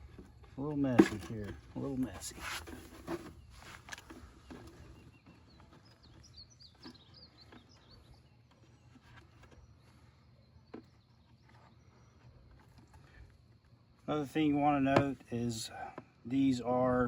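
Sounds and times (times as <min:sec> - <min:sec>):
bird chirping: 0:03.2 - 0:13.2.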